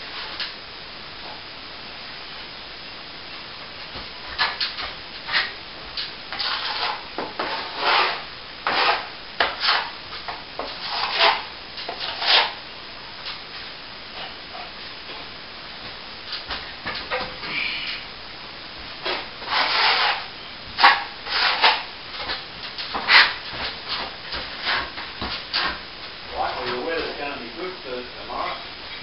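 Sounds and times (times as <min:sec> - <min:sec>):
hand tool scraping plaster: 0:06.3 - 0:09.9, 0:10.6 - 0:12.6, 0:19.0 - 0:25.8.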